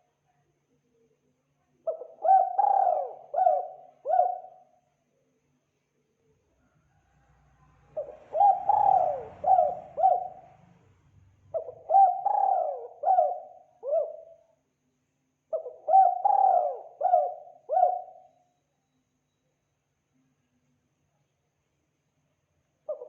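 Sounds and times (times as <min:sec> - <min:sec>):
dove cooing: 0:01.9 - 0:04.6, 0:07.9 - 0:10.6, 0:11.5 - 0:14.4, 0:15.5 - 0:18.3.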